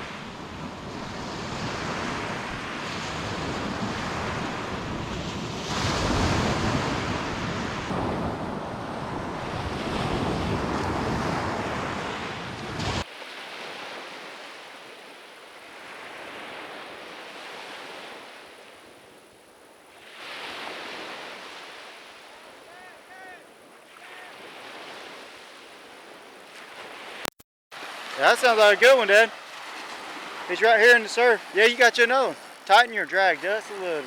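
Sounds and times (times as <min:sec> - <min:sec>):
wind buffeting microphone: 0:00.0 - 0:13.0
surf washing onto beach: 0:00.0 - 0:34.0.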